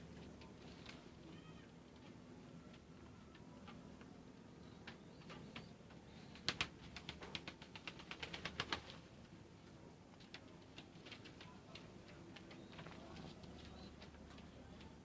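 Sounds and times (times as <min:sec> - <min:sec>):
pigeon wings clapping: 0:06.4 - 0:09.0.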